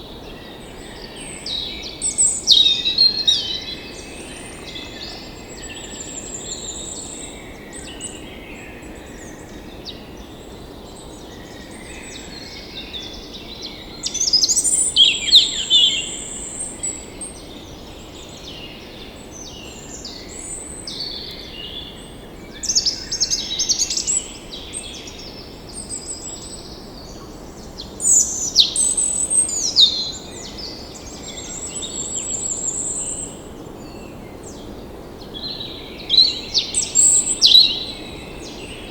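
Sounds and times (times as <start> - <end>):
small birds chirping: 11.3 - 38.9.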